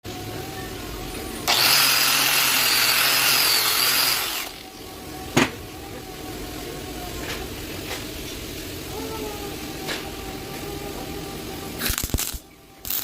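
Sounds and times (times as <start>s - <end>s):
power tool whining: 0.1s - 7.0s.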